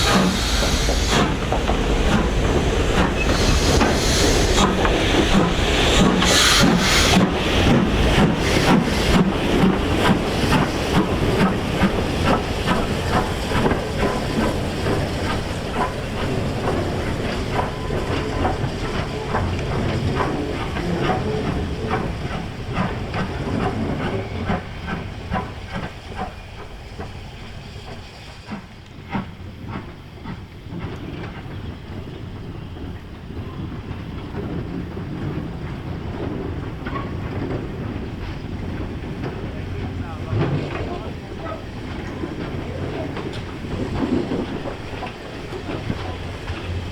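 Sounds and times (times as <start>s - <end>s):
train hissing: 0.0s - 33.8s
train rumble: 0.0s - 46.9s
train wheels clicking over rail joints: 0.0s - 46.9s.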